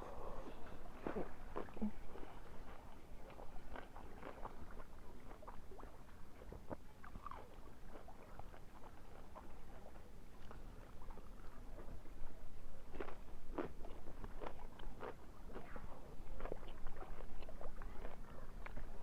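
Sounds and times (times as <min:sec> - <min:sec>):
mouth smacks: 0:00.0 - 0:02.4
chewing and crunching food: 0:00.0 - 0:19.0.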